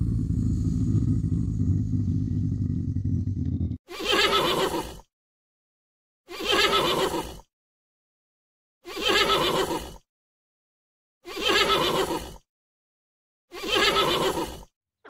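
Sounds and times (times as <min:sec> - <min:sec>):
horse whinnying: 0:04.0 - 0:04.9, 0:06.4 - 0:07.3.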